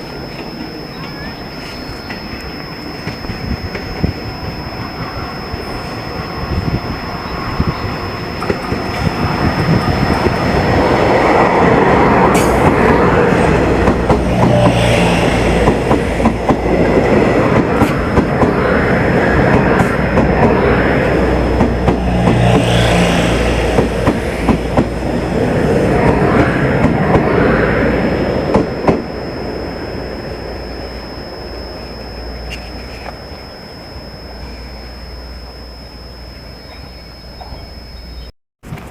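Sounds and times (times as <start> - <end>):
low hum: 0.0 - 38.3
train wheels clacking on rails: 8.3 - 27.6, 28.2 - 29.1.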